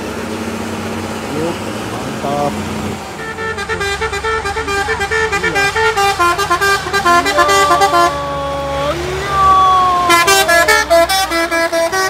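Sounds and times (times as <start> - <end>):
low engine hum: 0.0 - 12.0
multi-tone musical vehicle horn: 3.1 - 8.7, 10.0 - 12.0.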